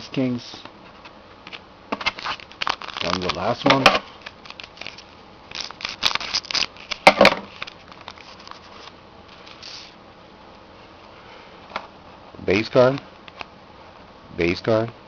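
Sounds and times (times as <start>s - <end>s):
foil pack crinkling: 2.0s - 9.9s
cards rustling: 2.0s - 10.0s.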